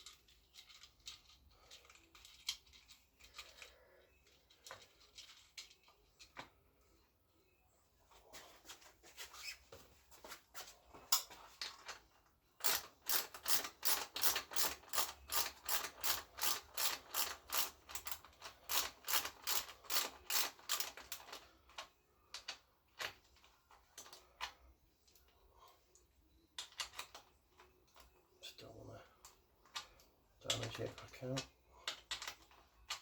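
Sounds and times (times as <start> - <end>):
hand ratchet clicking: 12.6 - 21.4.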